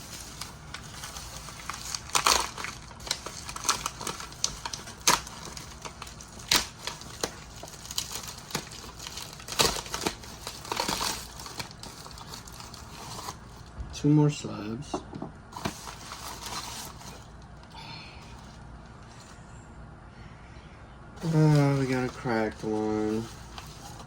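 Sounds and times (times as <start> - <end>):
packaging crinkling: 0.0 - 13.7, 15.5 - 17.6, 21.2 - 24.0.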